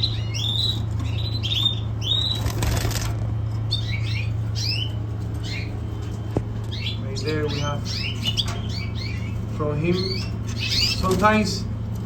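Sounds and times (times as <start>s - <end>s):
canaries chirping: 0.0s - 12.0s
steady low hum: 0.0s - 12.0s
wings flapping: 2.2s - 3.4s.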